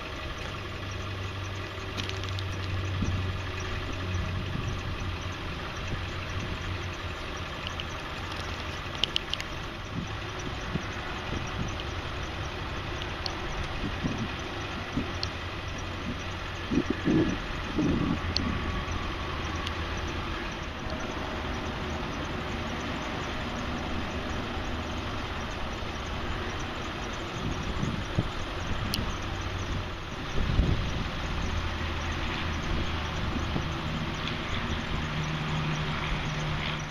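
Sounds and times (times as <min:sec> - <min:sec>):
diesel engine idling: 0:00.0 - 0:36.9
sharp clicks: 0:00.3 - 0:04.4, 0:05.0 - 0:24.7, 0:25.5 - 0:29.8.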